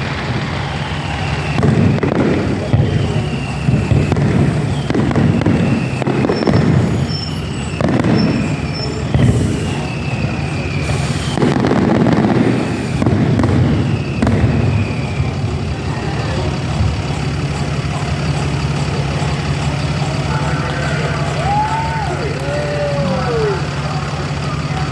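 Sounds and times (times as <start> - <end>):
fireworks bangs and crackling: 0.0 - 24.9
low rumble: 12.2 - 24.8.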